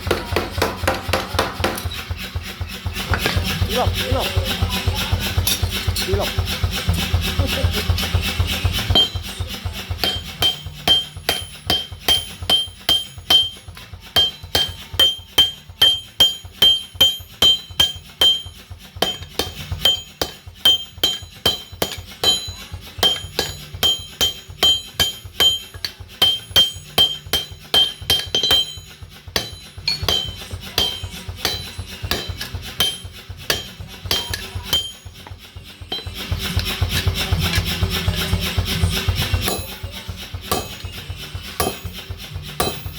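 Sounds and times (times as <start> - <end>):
hammers striking metal on anvil: 0.0 - 42.9.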